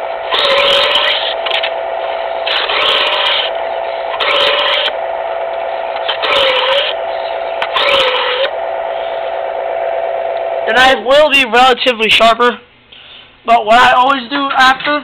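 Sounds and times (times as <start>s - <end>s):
knife sharpener motor humming: 0.0s - 10.7s
knife blade grinding rasp: 6.1s - 7.0s, 7.7s - 8.5s.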